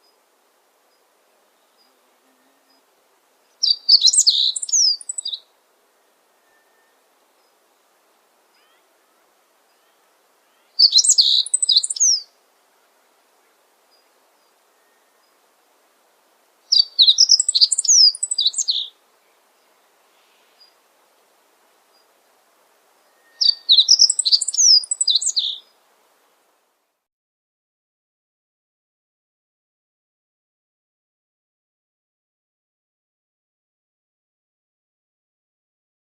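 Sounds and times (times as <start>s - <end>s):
songbird singing: 0.0s - 26.4s.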